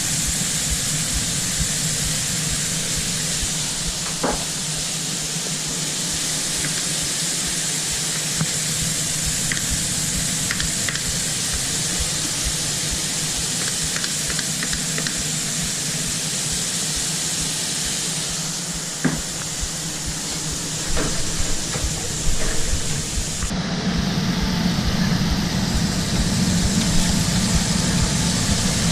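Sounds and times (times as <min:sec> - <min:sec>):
food sizzling: 0:00.0 - 0:23.5
low steady hum: 0:00.0 - 0:28.9
knock: 0:04.1 - 0:04.5, 0:19.0 - 0:19.3
utensil clicks: 0:13.6 - 0:15.3.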